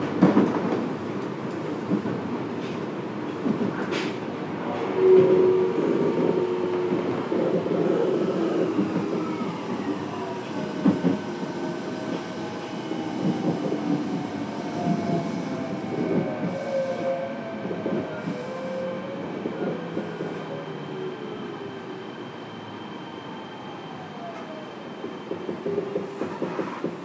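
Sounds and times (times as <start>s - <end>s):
rail-joint clicks: 0.0s - 4.2s
train rumbling: 0.0s - 22.7s, 24.2s - 27.0s.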